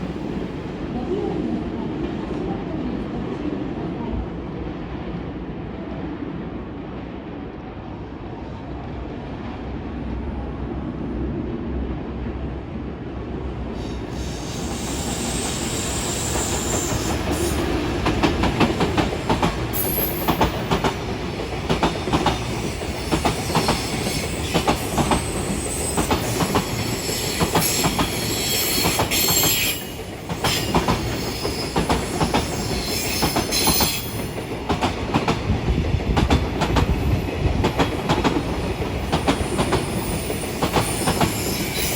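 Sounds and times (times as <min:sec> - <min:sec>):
freight train rumble: 0:00.0 - 0:41.9
high wheel squeal: 0:13.8 - 0:17.6, 0:23.4 - 0:34.3.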